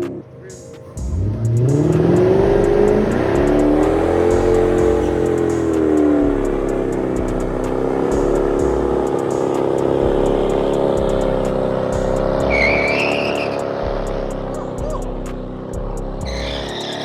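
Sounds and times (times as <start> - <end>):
car engine running under load: 1.0 - 17.0
brief high squeal: 16.3 - 17.0.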